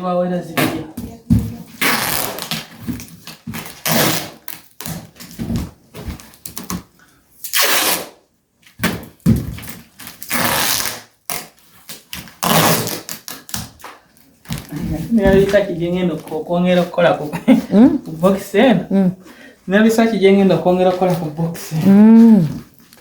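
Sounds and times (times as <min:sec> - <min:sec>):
rustling: 0:11.6 - 0:18.5
knocks and thumps: 0:14.5 - 0:15.7.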